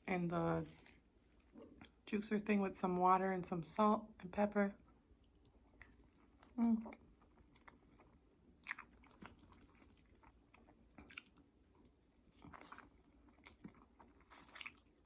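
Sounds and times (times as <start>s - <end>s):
person chewing: 5.2s - 15.0s.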